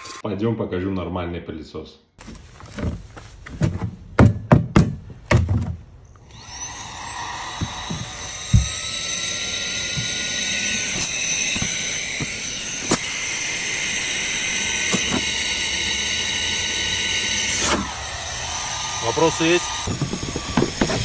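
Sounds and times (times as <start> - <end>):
knocks and clicks of handling: 2.2 - 6.3, 7.6 - 8.8
vacuum cleaner motor whining: 5.5 - 21.0.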